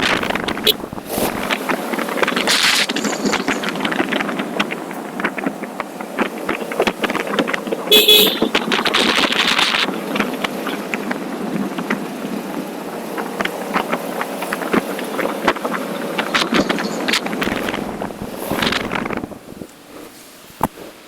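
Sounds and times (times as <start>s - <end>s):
wind and road noise: 0.0s - 21.0s
vehicle horn toot: 0.6s - 0.9s, 7.9s - 8.7s.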